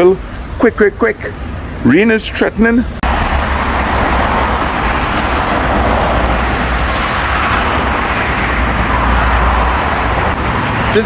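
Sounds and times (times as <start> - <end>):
motorcycle road noise: 1.2 - 11.0
wind buffeting microphone: 3.0 - 10.9
wind rush: 3.0 - 11.0.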